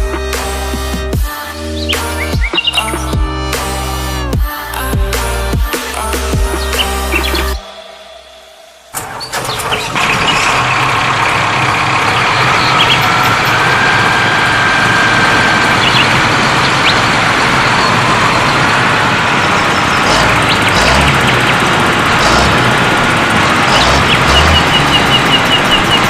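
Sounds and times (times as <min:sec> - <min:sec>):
vehicle engine rumbling: 0:00.0 - 0:26.0.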